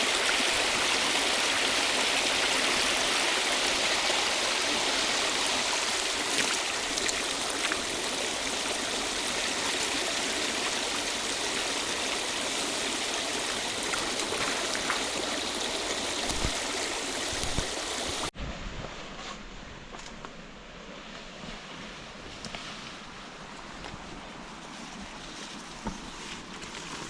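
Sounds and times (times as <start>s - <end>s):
river water rushing: 0.0s - 18.3s.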